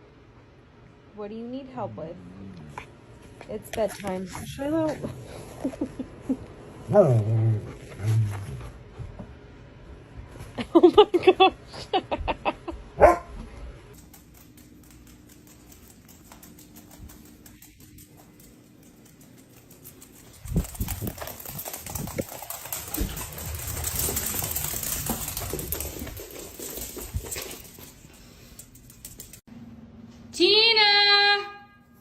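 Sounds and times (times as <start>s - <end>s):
dog barking: 13.0s - 13.4s.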